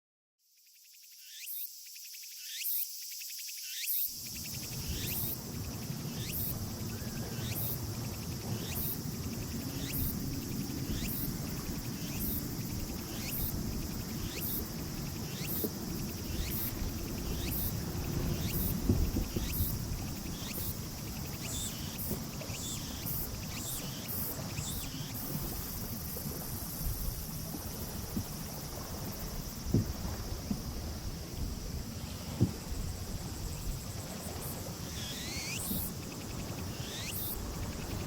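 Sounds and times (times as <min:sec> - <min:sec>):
insects trilling: 0:00.4 - 0:38.0
short insect call: 0:00.4 - 0:38.0.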